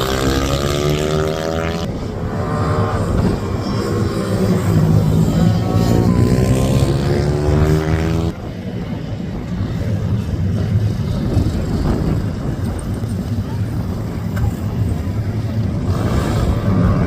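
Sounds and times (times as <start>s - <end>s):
minibike engine accelerating: 0.0s - 8.9s.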